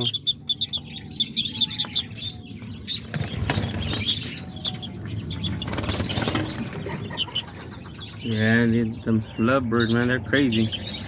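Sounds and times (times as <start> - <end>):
birds flapping wings: 5.6 - 7.0.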